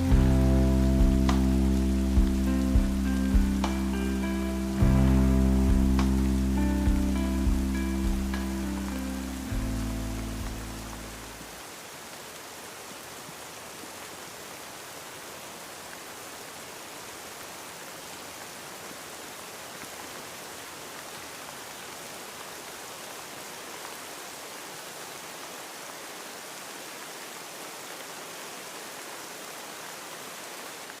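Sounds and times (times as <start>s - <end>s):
steady rain: 0.0s - 31.0s.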